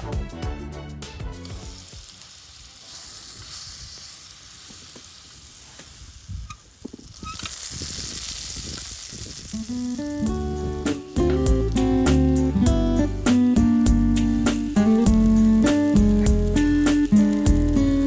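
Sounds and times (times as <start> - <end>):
music: 0.0 - 2.0, 9.6 - 18.0
food sizzling in a pan: 1.4 - 18.0.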